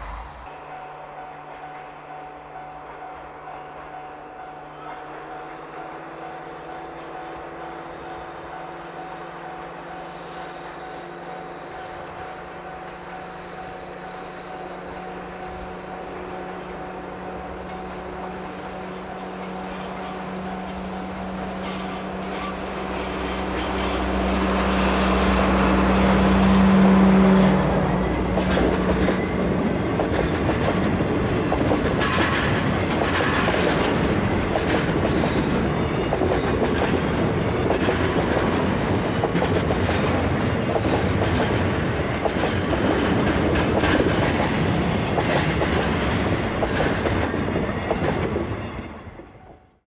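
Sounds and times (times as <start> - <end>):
diesel locomotive engine drone: 0.0 - 49.8
train wheels clattering over rail joints: 19.4 - 48.9.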